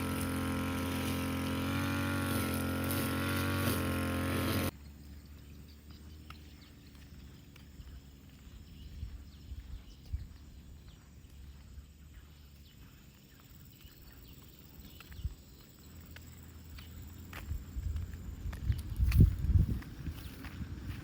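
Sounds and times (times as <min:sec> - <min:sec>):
wind rumbling on microphone: 0:07.8 - 0:11.9, 0:17.4 - 0:21.0.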